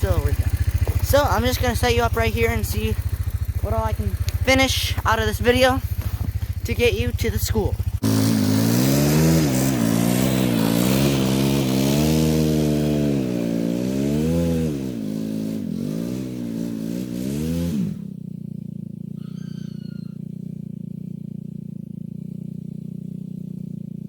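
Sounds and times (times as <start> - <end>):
garden tractor engine running: 0.0 - 14.6.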